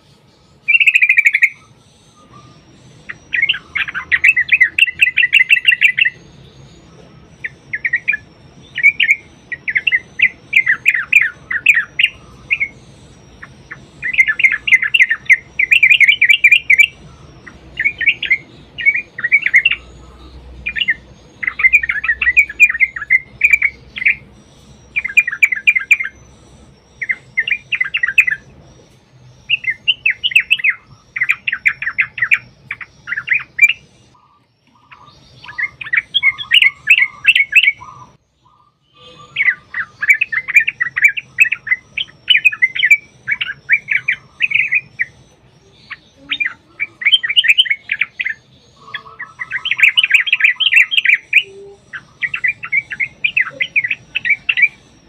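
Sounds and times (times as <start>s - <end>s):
bulbuls singing bubbling phrases: 0.0s - 55.0s.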